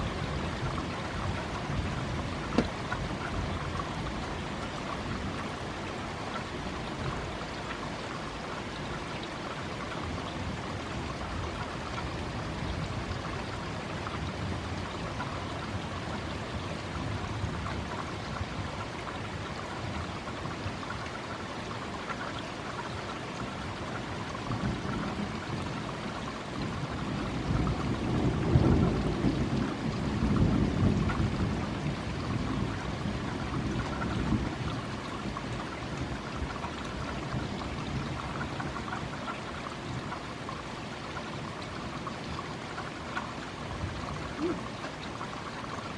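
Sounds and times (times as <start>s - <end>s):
steady rain: 0.0s - 45.9s
raindrop striking microphone: 2.4s - 3.0s.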